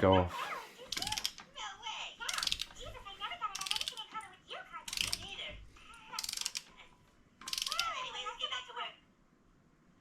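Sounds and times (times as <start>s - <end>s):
ratchet wrench clicking: 1.0s - 1.4s, 2.3s - 2.7s, 3.6s - 4.0s, 4.9s - 5.2s, 6.2s - 6.7s, 7.4s - 7.9s.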